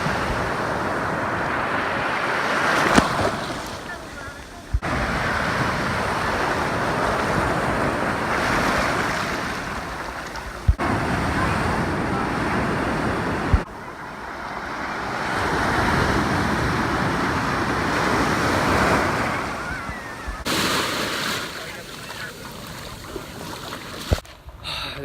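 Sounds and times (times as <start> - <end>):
waves breaking and washing in: 0.0 - 24.6.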